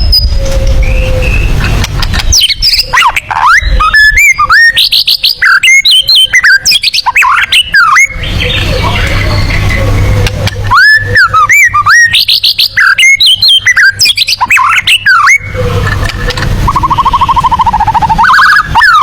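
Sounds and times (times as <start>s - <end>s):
bird singing whistled notes: 0.0s - 1.7s, 2.3s - 15.7s, 16.7s - 19.0s
low hum: 0.0s - 5.4s, 14.4s - 19.0s
harsh rough bird sounds: 0.0s - 19.0s.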